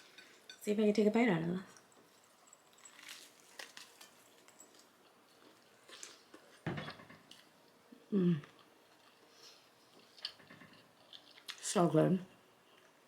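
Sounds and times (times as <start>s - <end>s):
lettuce crunching: 2.7s - 6.6s
person humming mm: 8.1s - 8.6s.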